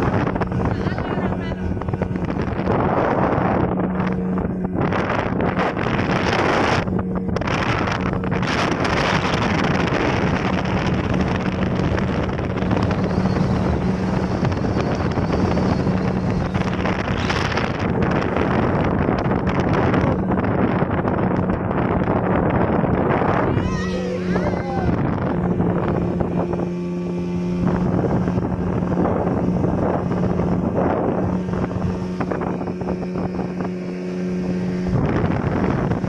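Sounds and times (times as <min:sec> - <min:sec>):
speedboat engine running: 0:00.0 - 0:36.0
wind buffeting microphone: 0:00.0 - 0:36.0.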